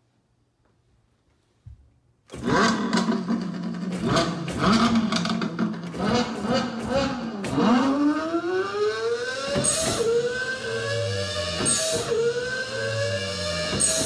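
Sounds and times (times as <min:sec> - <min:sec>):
car engine accelerating: 0:02.3 - 0:14.0.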